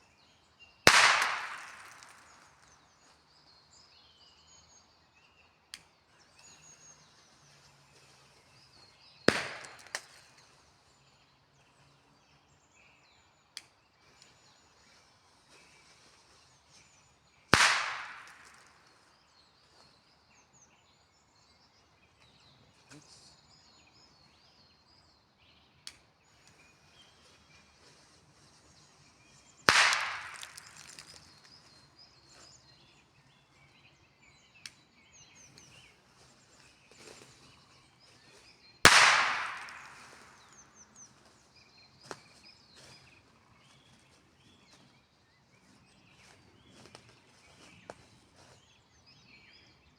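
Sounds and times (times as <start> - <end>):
firecracker bangs echoing: 0.9 - 2.5, 9.3 - 10.1, 17.6 - 18.7, 29.7 - 31.2, 38.9 - 40.5.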